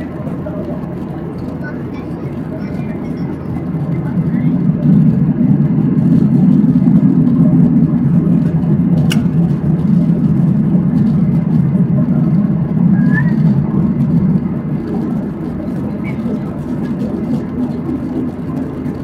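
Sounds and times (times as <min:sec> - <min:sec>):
airplane cabin rumble: 0:00.0 - 0:19.0
sharp click: 0:09.0 - 0:09.4.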